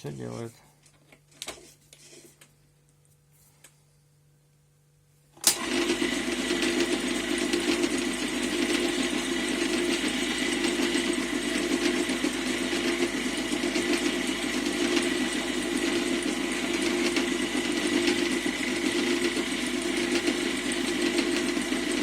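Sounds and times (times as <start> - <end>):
lathe machine drone: 5.6 - 22.0.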